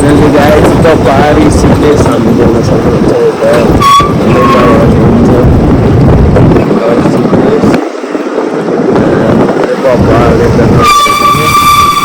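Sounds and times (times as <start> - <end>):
moving vehicle running: 0.0 - 12.0
wind buffeting microphone: 0.0 - 12.0.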